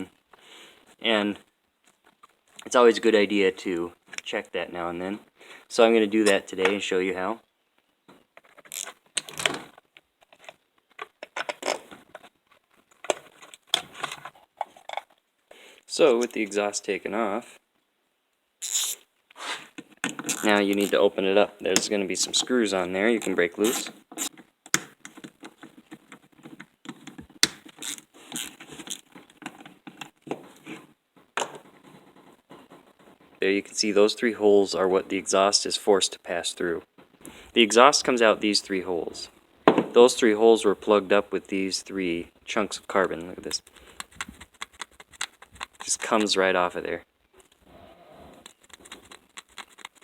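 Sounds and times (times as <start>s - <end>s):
hand tools scraping and clicking: 8.4s - 15.2s, 18.6s - 21.1s, 21.7s - 33.4s, 43.0s - 46.4s, 48.4s - 50.0s.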